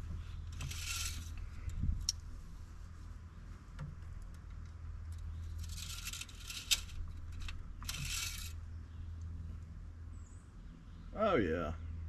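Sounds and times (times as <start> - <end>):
dipstick scraping in tube: 7.8 - 8.5.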